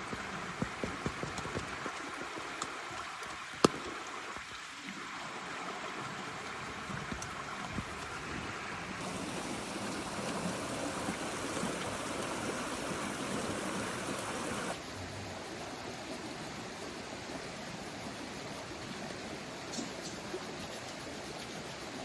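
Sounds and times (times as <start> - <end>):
steady rain falling: 0.0 - 14.8.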